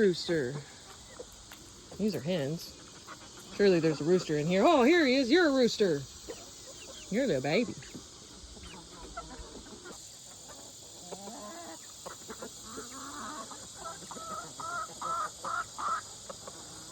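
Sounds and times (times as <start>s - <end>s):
chickens clucking: 0.0s - 16.9s
insects buzzing: 0.0s - 16.9s.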